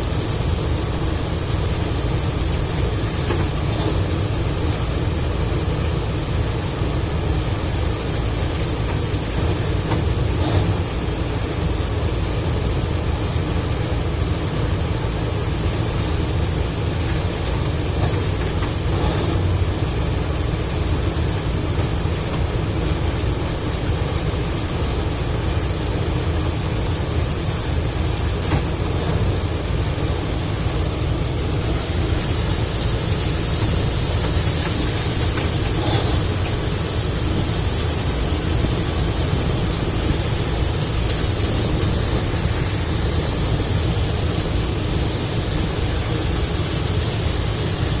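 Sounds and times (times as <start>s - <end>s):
tractor engine rumbling: 0.0s - 48.0s
high hiss: 31.6s - 48.0s.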